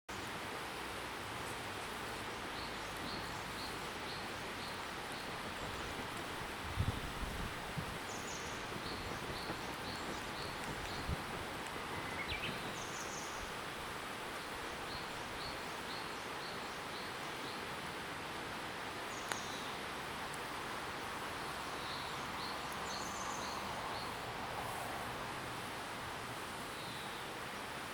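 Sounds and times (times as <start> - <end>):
bird chirping: 11.8 - 13.5.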